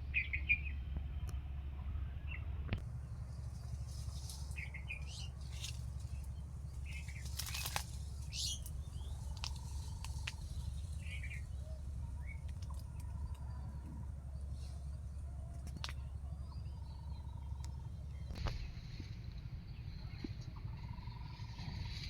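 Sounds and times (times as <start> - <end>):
birds chirping: 0.0 - 22.0
steady low rumble: 0.0 - 22.0
sharp ticks: 5.0 - 11.4.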